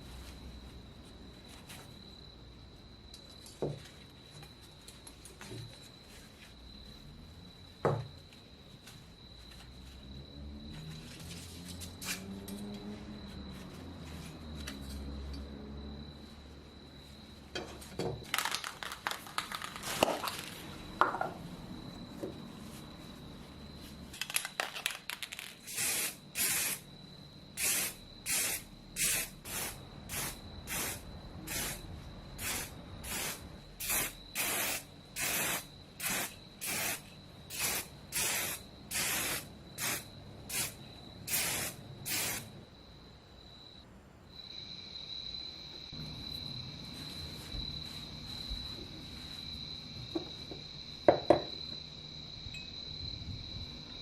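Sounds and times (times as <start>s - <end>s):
aerosol spray can hissing: 25.6s - 26.8s, 27.6s - 42.5s.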